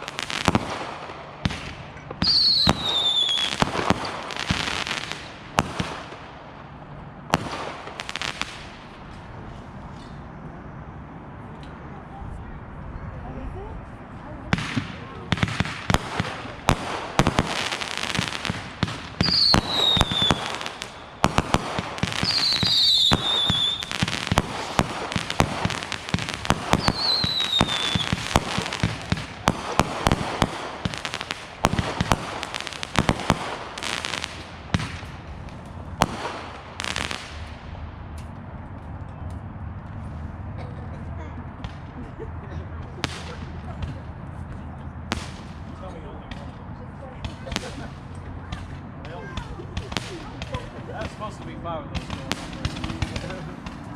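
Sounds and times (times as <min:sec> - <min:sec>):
fireworks bangs and crackles: 0:00.0 - 0:10.2, 0:14.4 - 0:40.5, 0:41.4 - 0:53.9
falling firework whistles: 0:02.2 - 0:05.4, 0:19.2 - 0:25.5, 0:26.5 - 0:29.0.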